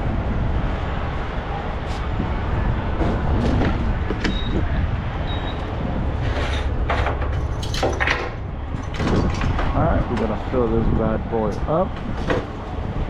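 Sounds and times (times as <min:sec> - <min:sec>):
truck engine rumbling: 0:00.0 - 0:13.0
knocks and clatter: 0:06.2 - 0:10.4.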